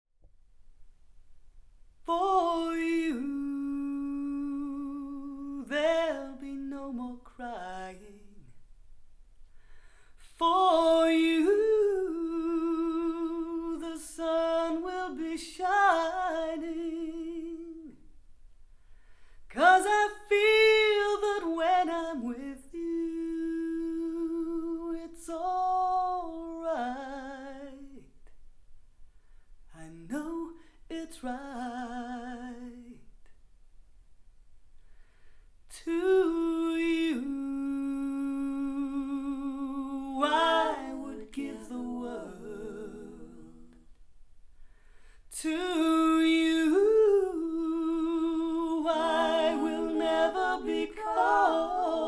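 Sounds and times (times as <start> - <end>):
woman singing wordless notes: 47.9 - 52.0.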